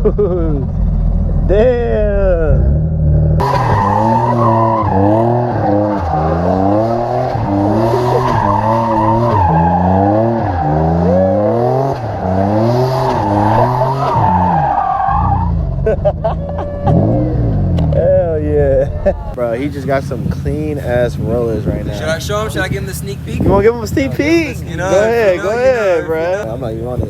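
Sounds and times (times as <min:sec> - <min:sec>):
car engine revving: 0:00.1 - 0:27.0.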